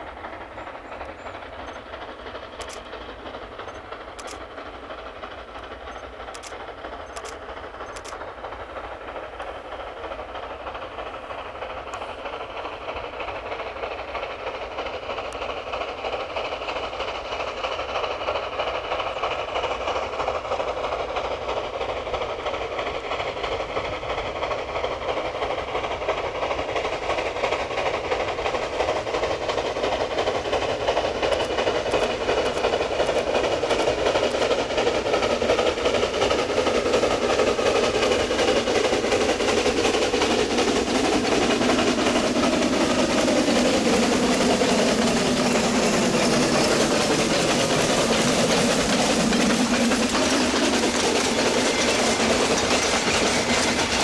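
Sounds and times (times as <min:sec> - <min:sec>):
steam train running on track: 0:00.0 - 0:54.0.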